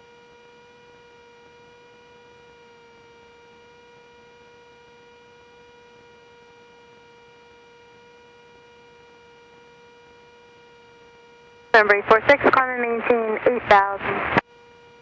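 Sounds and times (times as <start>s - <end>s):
faint steady hum: 11.8s - 14.4s.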